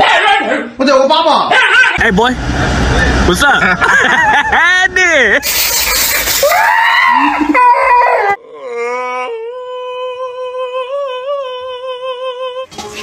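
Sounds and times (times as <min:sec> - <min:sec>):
shower water spraying: 0:05.4 - 0:06.5.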